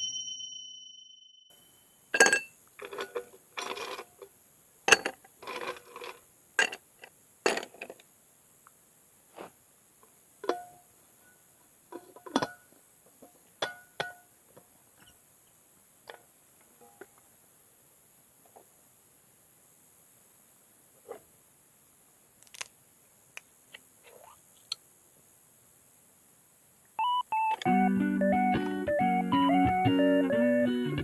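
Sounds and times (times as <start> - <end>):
glassware and ice clinking: 2.2 - 4.0, 4.9 - 6.8, 7.4 - 8.0.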